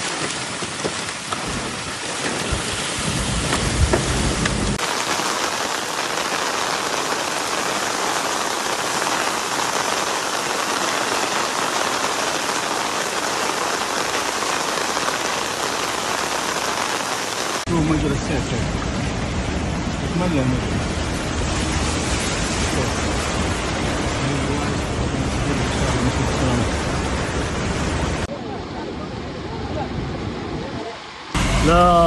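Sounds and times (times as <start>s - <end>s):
heavy rain pouring: 0.0s - 32.0s
low rumble: 31.4s - 32.0s.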